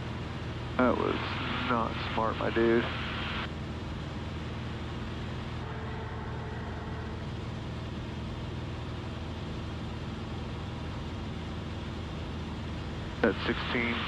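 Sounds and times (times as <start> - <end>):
propeller plane engine in flight: 0.0 - 14.0.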